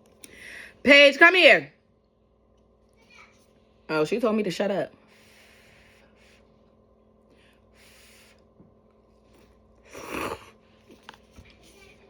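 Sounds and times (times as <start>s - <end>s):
soft breaths: 5.0s - 12.0s.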